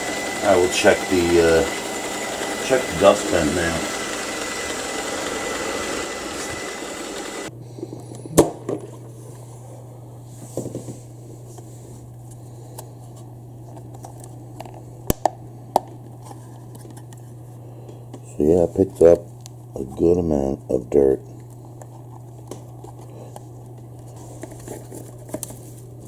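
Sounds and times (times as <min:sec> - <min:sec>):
robot vacuum whirring: 0:00.0 - 0:07.5.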